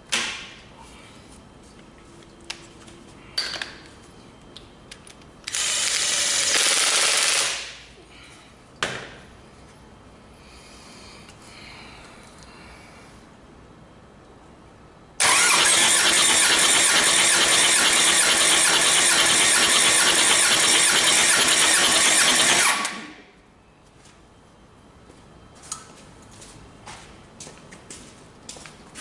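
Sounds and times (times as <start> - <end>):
diesel engine turning over: 15.2 - 23.1.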